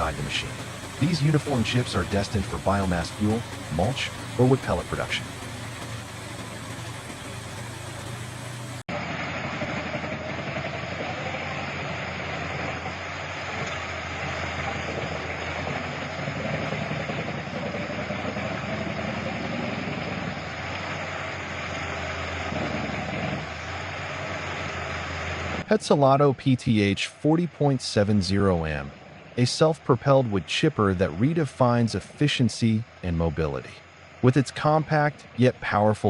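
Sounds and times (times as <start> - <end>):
wood chipper running: 0.0 - 25.7.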